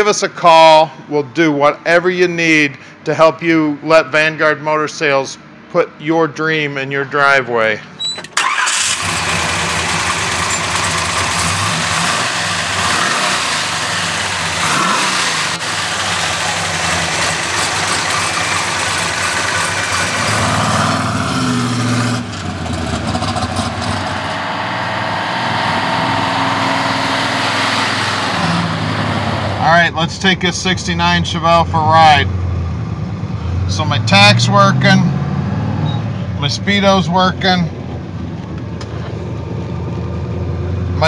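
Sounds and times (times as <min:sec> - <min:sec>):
car engine running: 0:08.1 - 0:34.9
car driving off under power: 0:08.3 - 0:29.6, 0:34.8 - 0:36.1.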